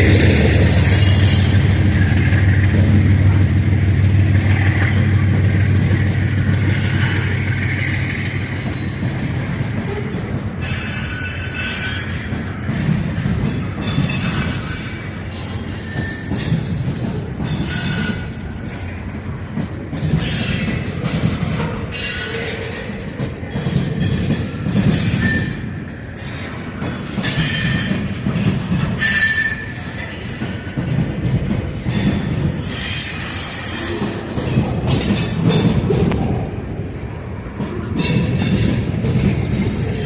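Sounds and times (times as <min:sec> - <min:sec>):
locomotive engine running: 0:00.0 - 0:10.6
rail cars clanking: 0:00.0 - 0:40.0
wheel squeals and screeches: 0:10.6 - 0:12.8, 0:13.8 - 0:16.6, 0:24.9 - 0:25.8, 0:27.2 - 0:30.6, 0:31.9 - 0:34.3.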